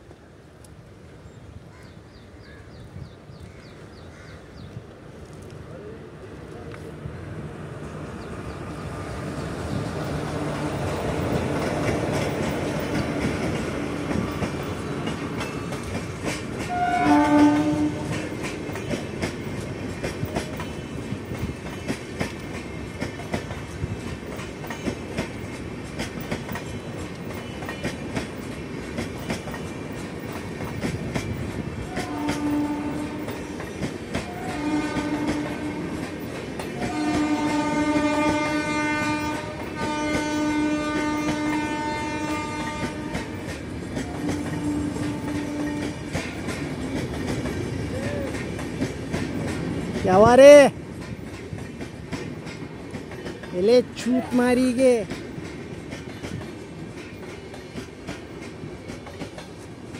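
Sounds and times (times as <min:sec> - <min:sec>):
train wheels clickety-clack: 0:09.2 - 0:59.9
train horn: 0:16.6 - 0:18.4, 0:31.8 - 0:33.4, 0:34.2 - 0:36.1, 0:36.8 - 0:43.5, 0:44.1 - 0:46.2.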